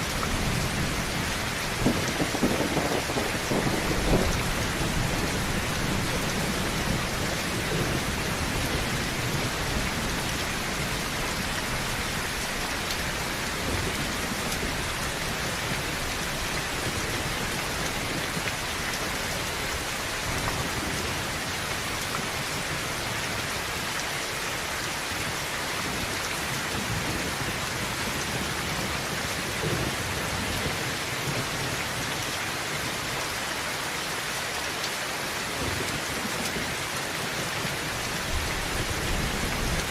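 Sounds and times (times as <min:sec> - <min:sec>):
heavy rain on a tin roof: 0:00.0 - 0:39.9
low rumble of thunder: 0:00.1 - 0:19.2.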